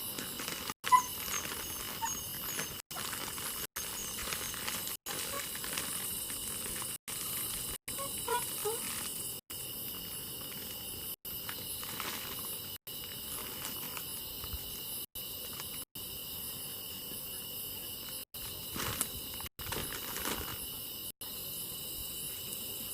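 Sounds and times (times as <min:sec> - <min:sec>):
faint crackles: 0:00.0 - 0:14.8
insects chirring: 0:00.0 - 0:22.9.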